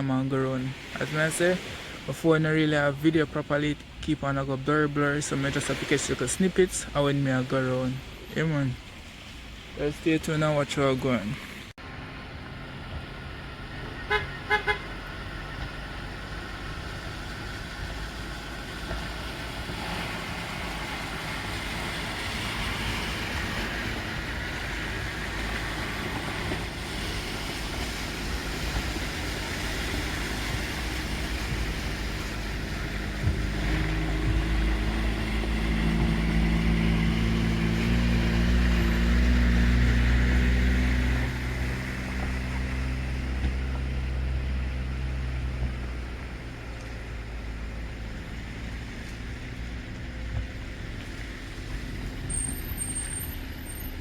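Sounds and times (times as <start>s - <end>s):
road traffic passing: 0.0s - 54.0s
vehicle engine passing: 11.8s - 54.0s.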